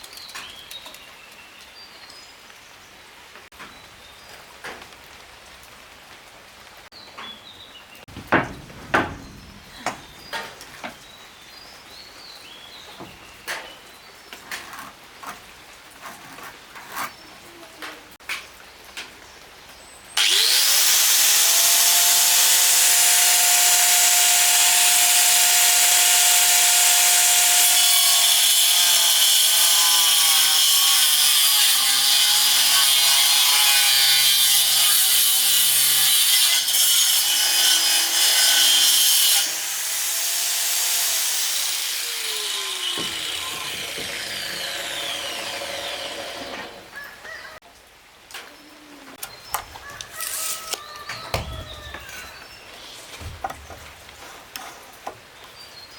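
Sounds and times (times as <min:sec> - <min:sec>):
electric saw cutting wood: 0:20.2 - 0:46.9.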